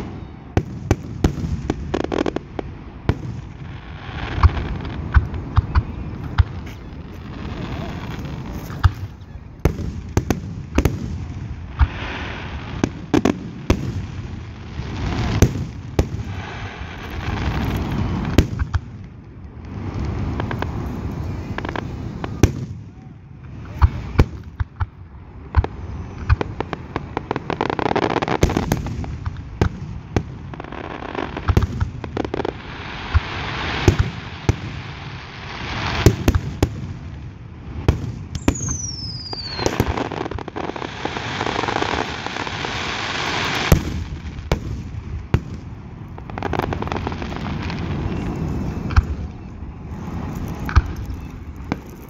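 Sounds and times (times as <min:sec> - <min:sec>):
fireworks bangs: 0:00.0 - 0:52.0
fireworks crackling: 0:00.0 - 0:52.0
falling firework whistle: 0:38.3 - 0:44.0.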